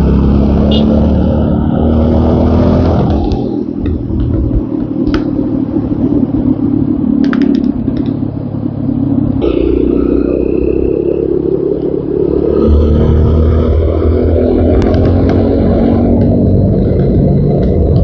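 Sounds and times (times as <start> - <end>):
motorcycle engine running: 2.8 - 18.0.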